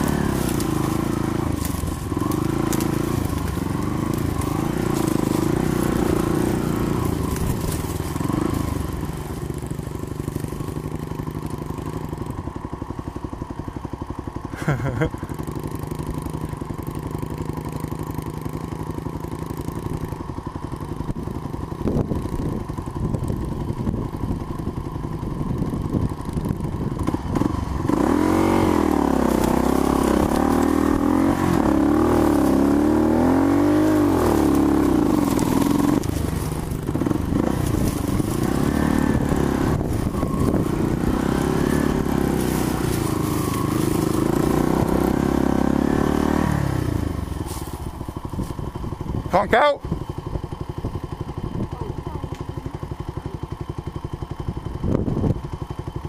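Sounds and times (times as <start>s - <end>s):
dirt bike engine revving: 0.0s - 55.2s.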